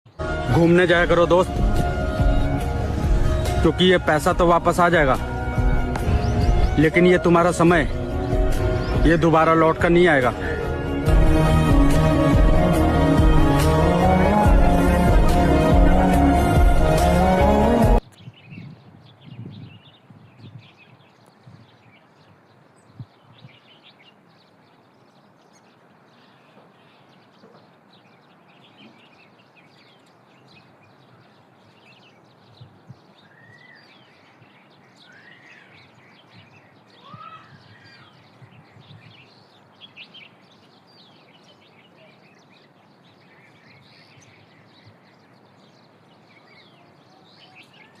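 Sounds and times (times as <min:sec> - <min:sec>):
small birds chirping: 0:00.1 - 0:12.4, 0:18.0 - 0:48.0
whistled bird calls: 0:32.5 - 0:40.4, 0:46.2 - 0:48.0.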